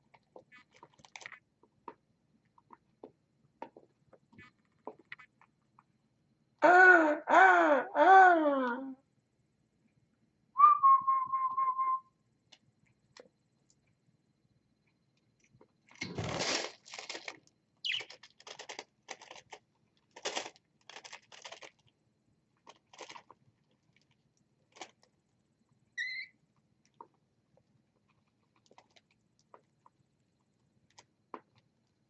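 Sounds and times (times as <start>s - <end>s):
bird crunching food: 0.0s - 1.5s, 15.9s - 21.9s, 22.6s - 25.1s, 28.0s - 29.9s
bird chirp: 17.8s - 18.2s, 26.0s - 26.4s.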